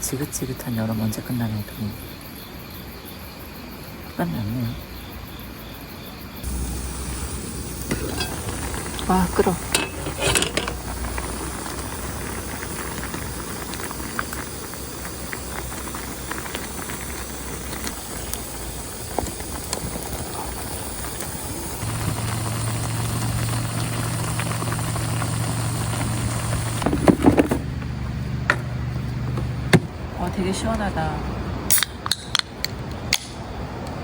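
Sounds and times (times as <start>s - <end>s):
water boiling in a pot: 6.4s - 27.8s
low steady hum: 6.5s - 14.2s.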